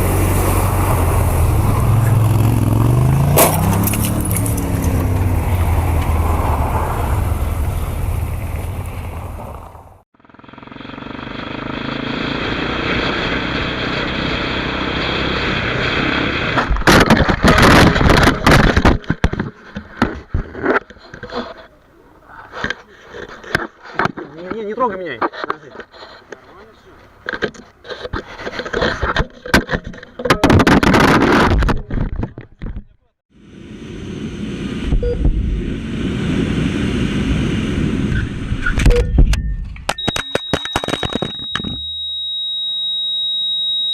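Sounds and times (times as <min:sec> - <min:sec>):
motorcycle engine at speed: 0:00.0 - 0:20.4
motorcycle crash: 0:00.0 - 0:21.8
vehicle road and engine noise: 0:00.0 - 0:41.6
knocks and scrapes: 0:00.8 - 0:07.2, 0:16.4 - 0:33.0
wind noise: 0:15.1 - 0:21.5, 0:33.7 - 0:40.1.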